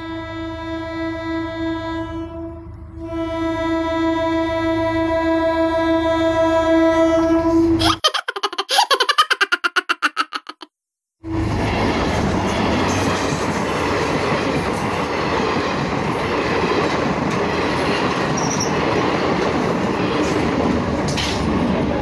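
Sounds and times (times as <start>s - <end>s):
train wheels rumbling on rails: 11.3s - 22.0s.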